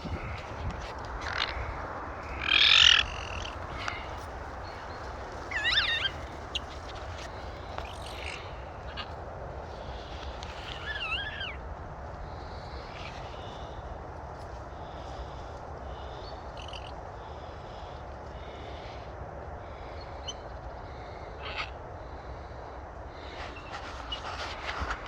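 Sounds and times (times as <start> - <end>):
wind buffeting microphone: 0.0 - 16.3, 22.1 - 25.0
high wavering calls: 1.2 - 6.8.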